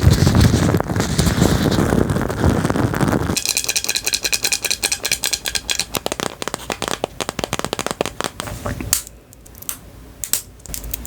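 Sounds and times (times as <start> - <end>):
rubbing and rustling on microphone: 0.0 - 3.4, 5.8 - 8.8
fast sharp taps: 3.4 - 8.5.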